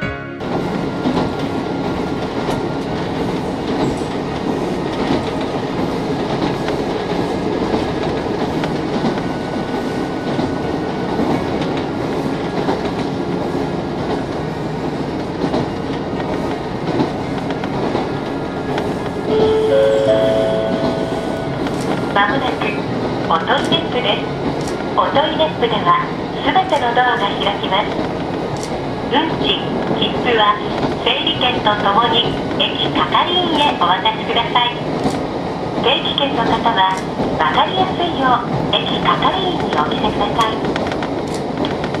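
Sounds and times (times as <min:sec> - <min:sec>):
railcar engine and wheels rumbling: 0:00.0 - 0:42.0
clickety-clack of rail joints: 0:00.4 - 0:42.0
rising chime: 0:19.3 - 0:21.6.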